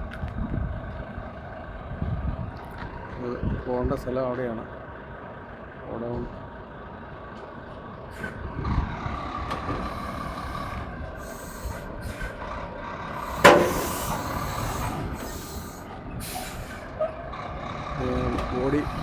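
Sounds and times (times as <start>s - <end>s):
semi-truck engine running: 0.6s - 3.1s, 4.5s - 19.0s
air brake hiss: 11.2s - 12.4s, 13.2s - 16.9s
loud metallic clunk: 13.3s - 15.7s.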